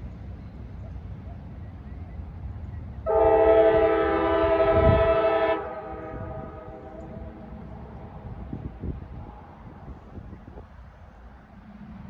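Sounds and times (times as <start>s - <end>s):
low wind rumble: 0.0s - 12.0s
locomotive air horn blast: 3.1s - 7.4s.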